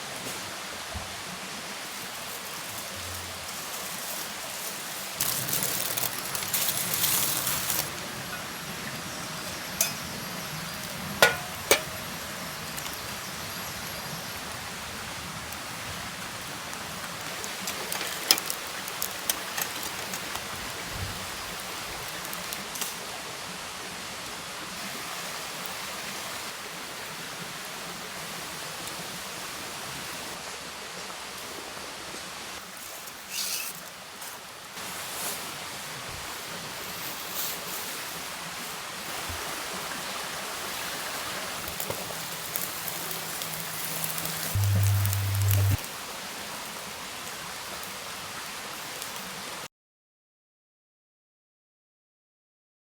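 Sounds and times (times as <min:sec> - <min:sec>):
outdoor hiss: 0:00.0 - 0:49.7
rustling: 0:02.3 - 0:13.0, 0:41.6 - 0:45.8
camp cooking gear clinking: 0:05.2 - 0:14.2, 0:15.4 - 0:22.9, 0:41.5 - 0:45.8.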